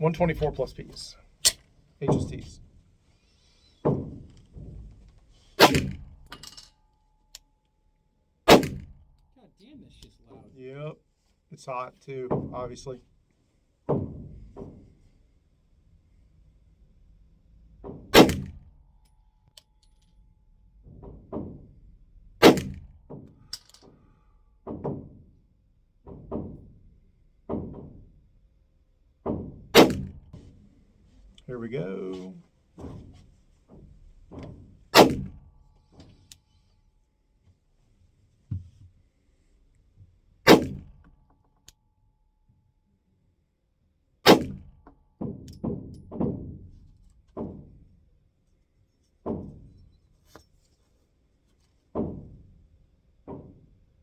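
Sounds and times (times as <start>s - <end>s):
pistol shots: 5.6s - 6.0s, 8.5s - 8.9s, 18.2s - 18.5s, 22.4s - 22.8s, 29.8s - 30.1s, 35.0s - 35.3s, 40.5s - 40.8s, 44.3s - 44.5s.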